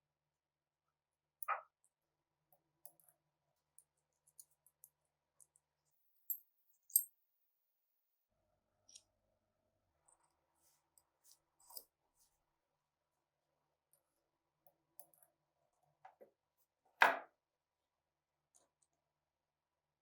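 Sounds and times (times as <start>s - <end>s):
metallic clicks of pistol parts: 6.9s - 7.1s.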